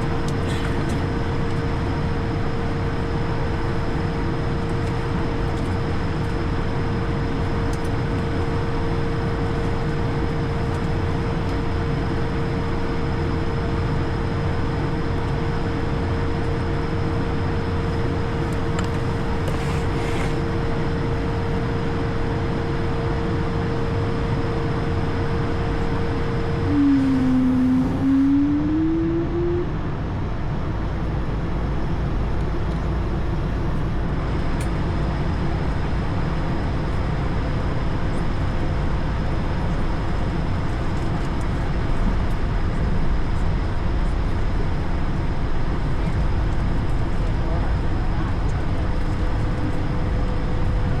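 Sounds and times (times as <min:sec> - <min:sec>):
cockpit hum and rumble: 0:00.0 - 0:51.0
steady mid-pitched tone: 0:26.7 - 0:29.9
lower tone rising in pitch: 0:26.7 - 0:30.0.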